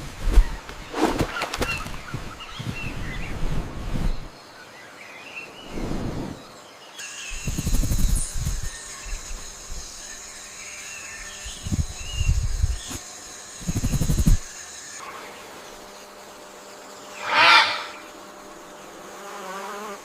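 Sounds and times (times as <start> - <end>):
bird chirps and squeals: 17.1 - 18.2.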